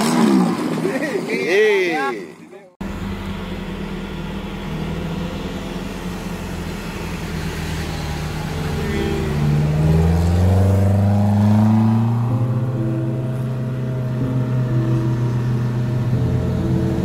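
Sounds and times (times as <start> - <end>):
steady engine drone: 2.8 - 17.0
car engine accelerating past: 4.4 - 17.0.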